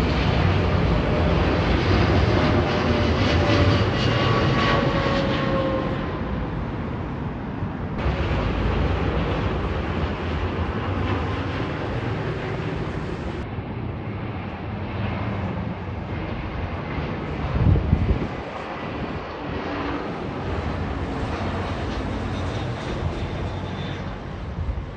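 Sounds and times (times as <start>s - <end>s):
jet airliner engine rushing: 0.0s - 24.9s
low rumble: 8.0s - 13.6s.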